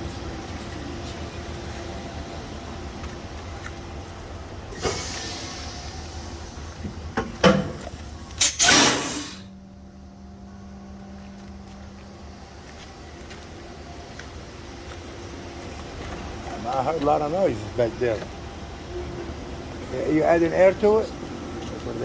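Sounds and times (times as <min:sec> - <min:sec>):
compressed air hissing: 0:04.7 - 0:06.5, 0:08.4 - 0:09.5.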